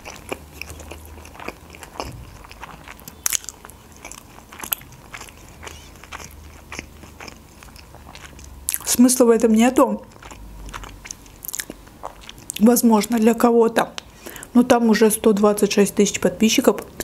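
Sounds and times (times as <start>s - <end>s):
chewing with wet mouth clicks: 0.0s - 9.0s, 10.0s - 12.7s.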